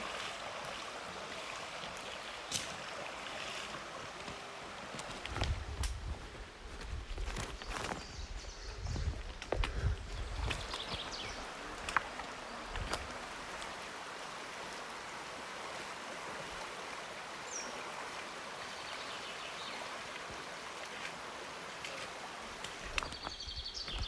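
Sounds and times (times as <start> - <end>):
river rushing over rocks: 0.0 - 5.3, 10.7 - 23.2.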